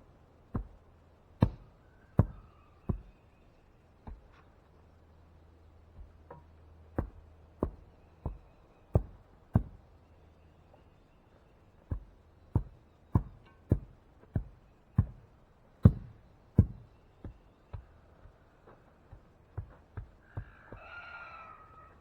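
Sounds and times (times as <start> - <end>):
heavy thuds driving a post: 11.9 - 15.2, 15.8 - 17.9.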